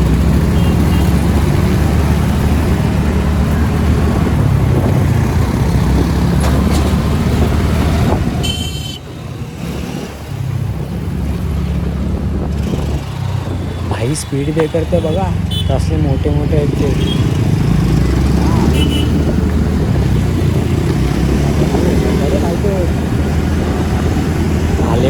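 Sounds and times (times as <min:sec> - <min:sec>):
wind buffeting and road noise: 0:00.0 - 0:25.0
vehicle horn beeping: 0:00.5 - 0:01.2, 0:08.4 - 0:09.1, 0:14.5 - 0:16.1, 0:18.7 - 0:19.2.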